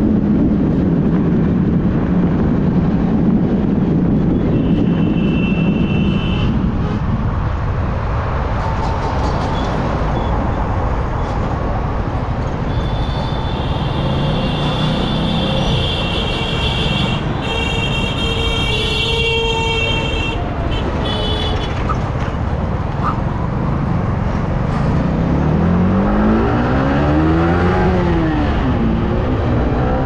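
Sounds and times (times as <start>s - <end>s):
wind noise: 0.0s - 30.0s
motorcycle engine: 12.2s - 24.4s.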